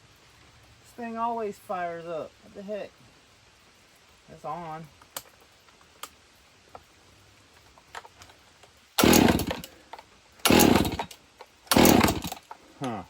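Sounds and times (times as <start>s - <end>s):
chainsaw engine bursts: 9.0s - 9.8s, 10.4s - 13.0s.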